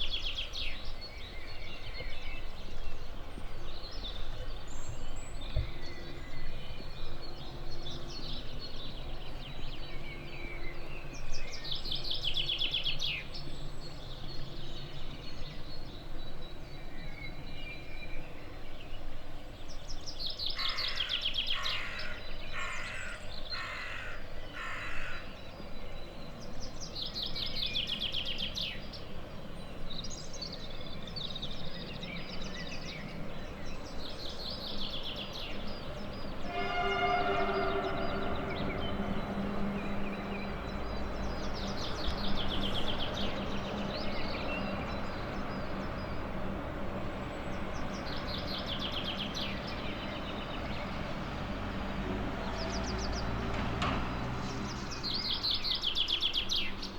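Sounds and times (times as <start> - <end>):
songbirds singing trills: 0.0 - 56.9
outdoor background haze: 25.3 - 52.2
harsh bird calls: 35.1 - 51.2.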